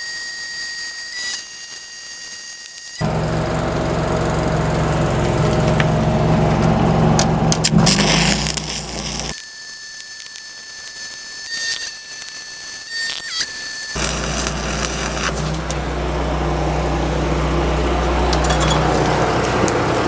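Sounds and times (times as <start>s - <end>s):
low machine hum: 3.0s - 9.3s, 14.0s - 20.0s
steady high whine: 3.0s - 9.4s, 14.0s - 20.0s
welding arc crackling: 3.0s - 9.4s, 14.0s - 20.0s.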